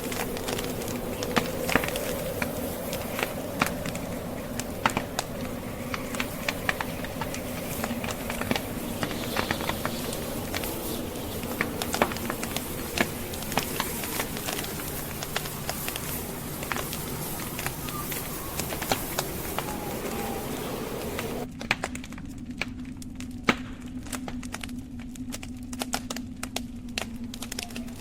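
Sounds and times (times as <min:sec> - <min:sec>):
blizzard wind rushing: 0:00.0 - 0:21.5
log fire crackling and popping: 0:00.0 - 0:28.0.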